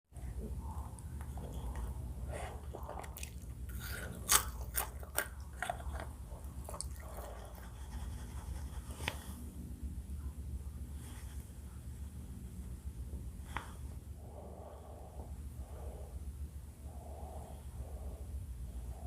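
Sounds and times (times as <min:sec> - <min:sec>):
low steady hum: 0:00.1 - 0:19.0
close chewing crunches: 0:00.9 - 0:07.8.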